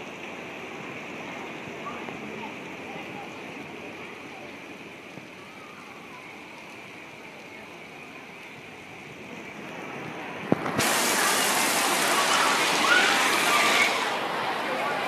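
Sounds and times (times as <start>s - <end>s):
downpour on tent canvas: 0.0s - 15.0s
heavy rain on pavement: 0.0s - 15.0s
water pouring off edges: 9.7s - 15.0s.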